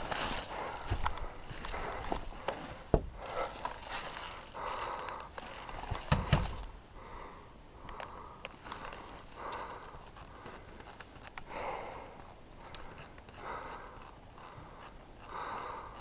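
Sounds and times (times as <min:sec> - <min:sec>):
footsteps through brush: 0:00.0 - 0:06.8, 0:08.5 - 0:11.2.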